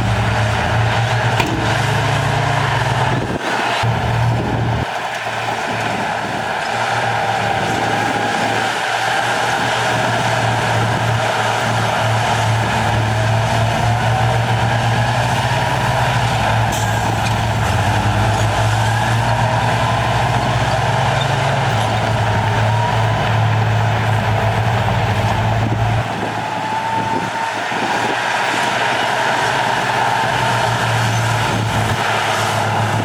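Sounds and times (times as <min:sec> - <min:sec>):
high whine gliding: 0:00.0 - 0:06.7
diesel machinery engine: 0:00.0 - 0:33.0.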